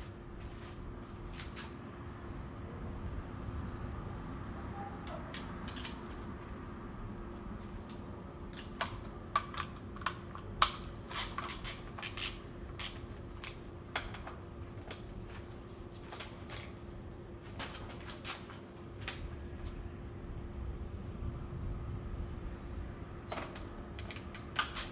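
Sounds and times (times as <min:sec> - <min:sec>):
steady low hum: 0:00.0 - 0:24.9
hand tools and metal parts clinking: 0:05.1 - 0:06.8, 0:07.5 - 0:19.8, 0:23.3 - 0:24.9.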